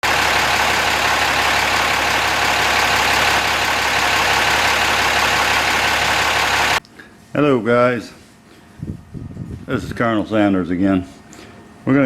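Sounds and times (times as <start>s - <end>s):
engine idling: 0.0s - 6.8s.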